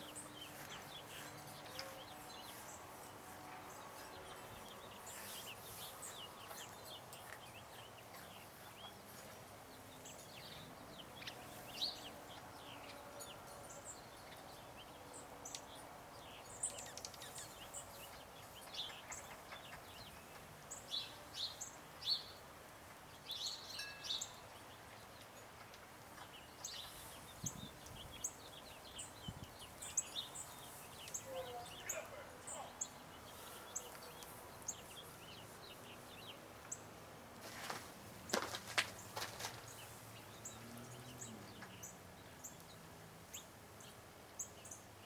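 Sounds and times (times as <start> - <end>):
small songbirds chirping: 0.0 - 45.0.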